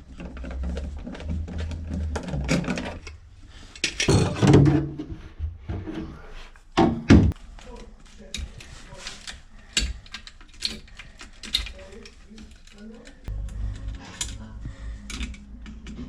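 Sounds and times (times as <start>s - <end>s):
low steady hum: 12.6s - 16.0s.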